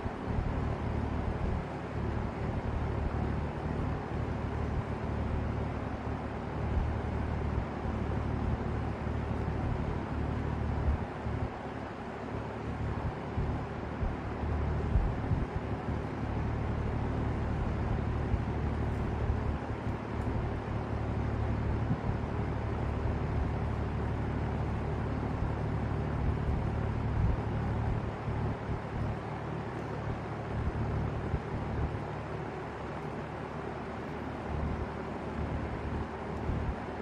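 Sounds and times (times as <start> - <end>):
low uneven rumble: 12.4 - 37.0.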